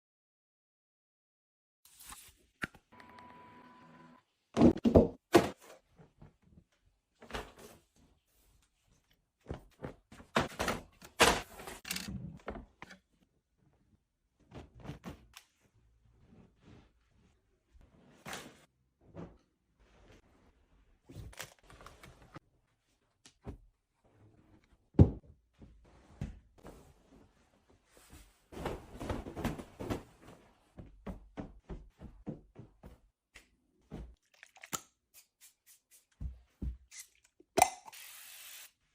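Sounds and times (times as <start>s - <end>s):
objects knocking and thudding: 4.6s - 5.7s.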